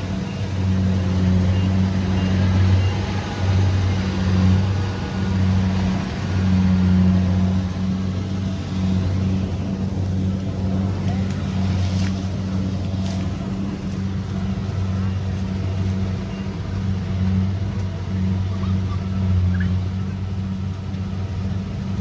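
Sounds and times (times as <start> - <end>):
combine harvester diesel engine: 0.0 - 22.0.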